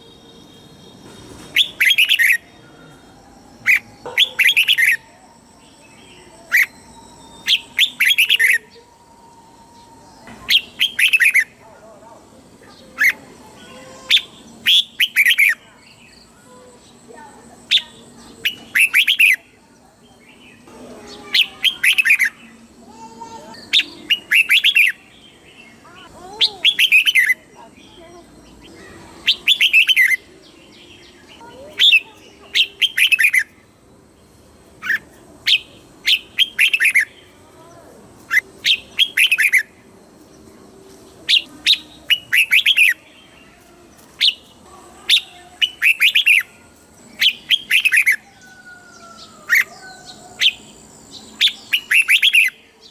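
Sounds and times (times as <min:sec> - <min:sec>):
bird singing short phrases: 0:00.0 - 0:02.6, 0:10.2 - 0:11.6, 0:12.7 - 0:19.4, 0:20.1 - 0:33.6, 0:34.8 - 0:39.7, 0:41.3 - 0:52.9.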